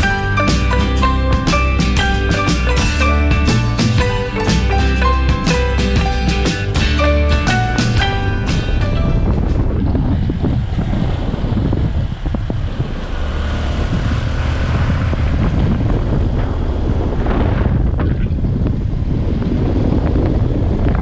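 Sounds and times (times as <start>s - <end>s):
vehicle engine running: 0.0s - 21.0s
wind rumble on microphone: 7.8s - 21.0s.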